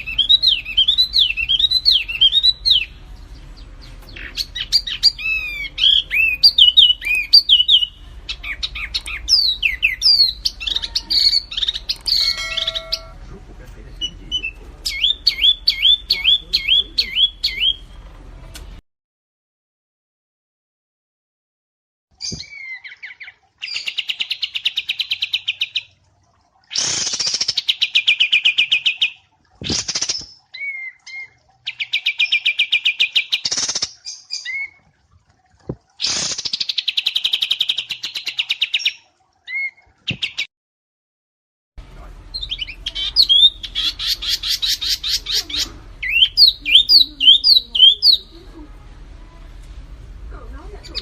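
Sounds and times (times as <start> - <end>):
single bird chirps: 4.1 - 13.2
rising and falling whistled notes: 12.1 - 13.2.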